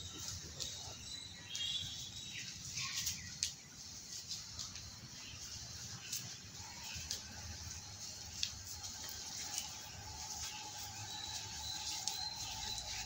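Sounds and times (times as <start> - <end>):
birds chirping: 0.0 - 13.0
low outdoor hum: 0.0 - 13.0.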